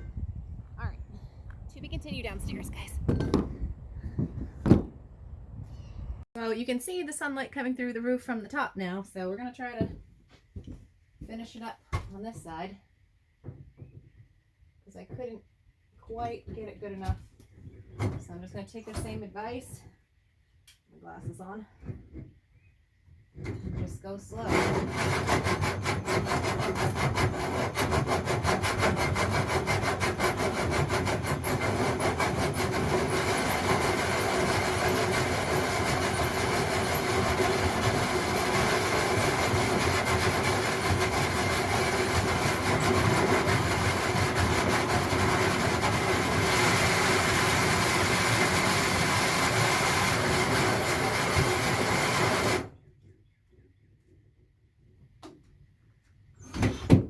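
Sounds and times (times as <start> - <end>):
power drill grinding against wood: 24.4 - 52.7.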